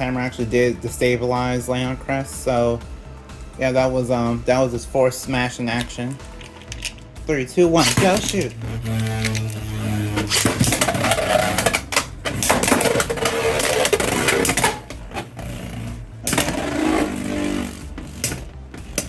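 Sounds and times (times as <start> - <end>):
tops scraping on plastic: 7.8 - 19.0.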